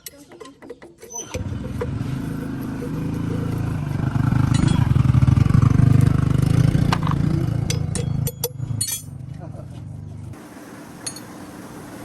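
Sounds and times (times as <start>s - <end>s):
tractor engine running: 1.2s - 10.4s.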